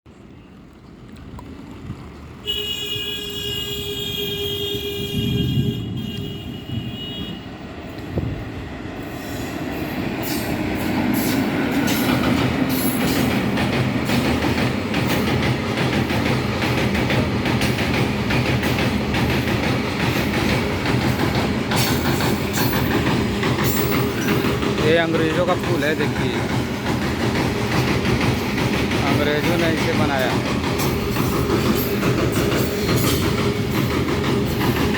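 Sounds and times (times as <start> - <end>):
train horn: 2.4 - 7.6
train wheels clattering on rails: 9.2 - 34.9.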